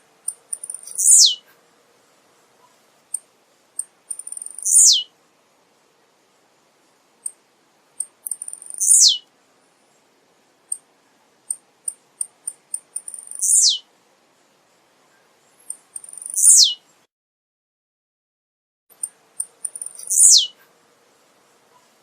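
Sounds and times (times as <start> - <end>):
high bird chips: 0.3 - 1.4, 19.0 - 20.5.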